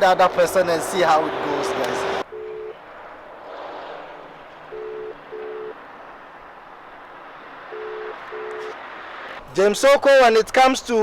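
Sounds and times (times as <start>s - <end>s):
telephone ringback tone: 2.3s - 2.8s, 4.7s - 5.8s, 7.7s - 8.7s.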